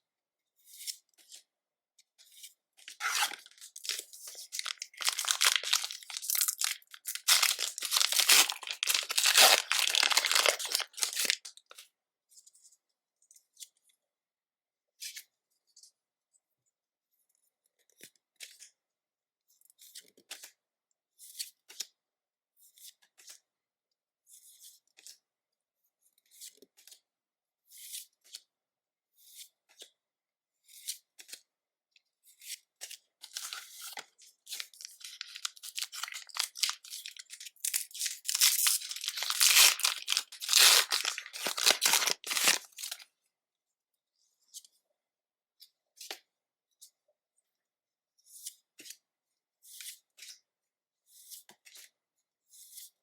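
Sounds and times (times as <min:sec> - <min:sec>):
cards rustling and sliding: 0:03.0 - 0:11.4, 0:34.5 - 0:43.0
foil wrapper crinkling and tearing: 0:03.0 - 0:11.5, 0:33.3 - 0:33.9, 0:34.5 - 0:43.0.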